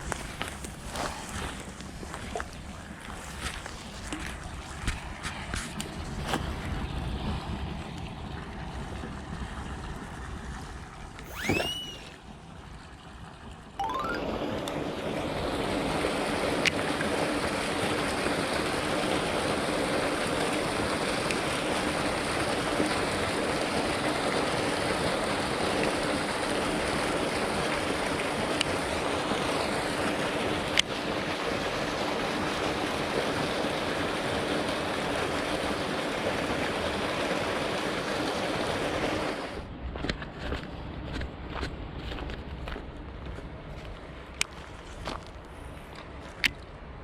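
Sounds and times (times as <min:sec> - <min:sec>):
flowing water rushing: 0:13.8 - 0:39.6.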